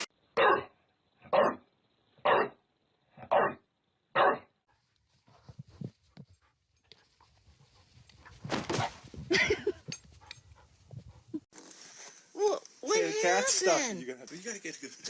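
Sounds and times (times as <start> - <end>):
dog barking: 0.4 - 0.7, 1.3 - 1.6, 2.2 - 2.6, 3.2 - 3.6, 4.2 - 4.5.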